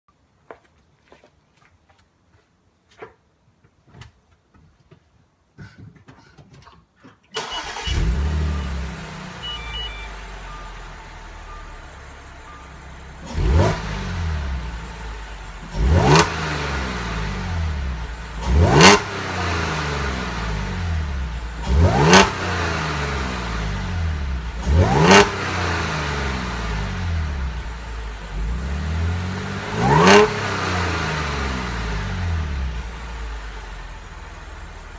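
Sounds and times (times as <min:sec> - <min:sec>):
car engine starting and revving: 0:07.4 - 0:34.9
dashboard chimes: 0:08.5 - 0:13.7.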